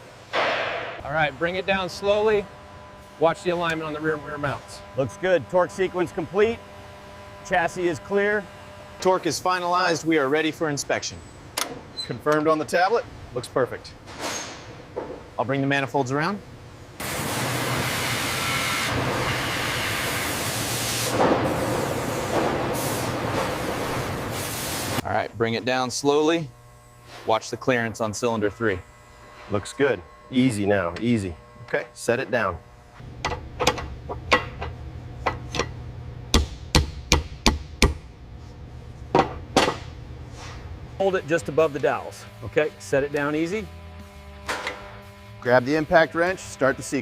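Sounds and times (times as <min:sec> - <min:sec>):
steady low hum: 0:00.0 - 0:47.0
sharp knocks on engine parts: 0:36.3 - 0:38.0, 0:39.1 - 0:39.9.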